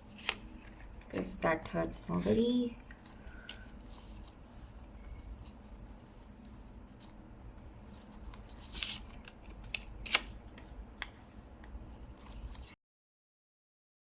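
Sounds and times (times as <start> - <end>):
scissors cutting paper: 8.3 - 10.4.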